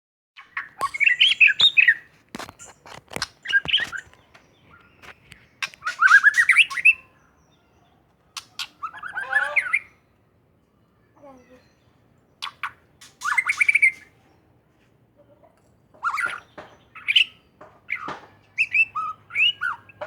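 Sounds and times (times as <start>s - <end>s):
bird singing whistled notes: 0.6s - 2.0s, 3.5s - 8.0s, 16.0s - 20.0s.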